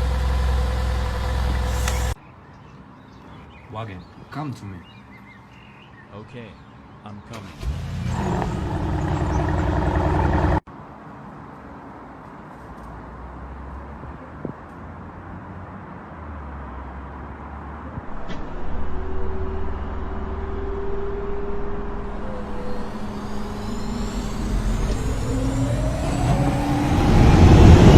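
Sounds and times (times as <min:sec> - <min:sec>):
motor vehicle running: 0:00.0 - 0:02.2, 0:07.6 - 0:10.6, 0:18.0 - 0:27.9.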